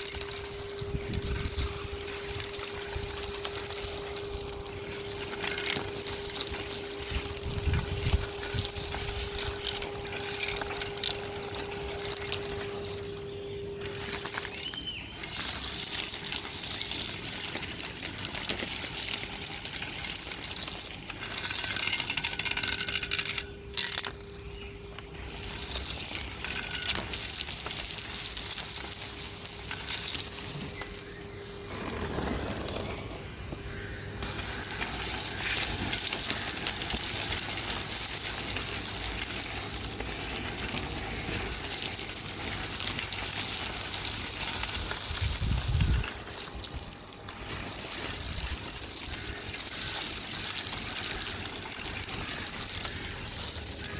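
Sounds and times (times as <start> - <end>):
grit rattling in vacuum: 25.4 - 33.4.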